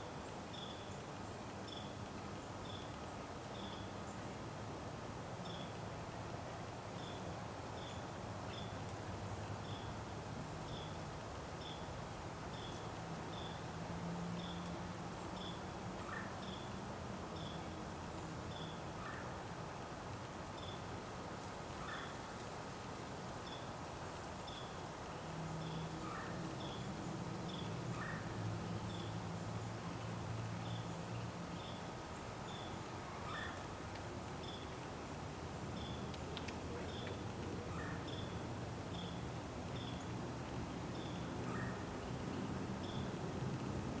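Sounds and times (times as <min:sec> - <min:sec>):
soft outdoor background noise: 0:00.0 - 0:44.0
small bird calling: 0:32.5 - 0:33.6.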